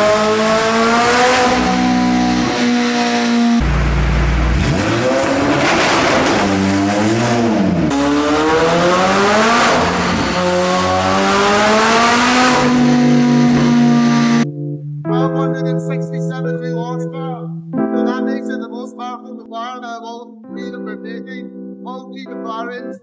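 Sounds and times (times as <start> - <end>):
car engine revving: 0.0 - 14.5.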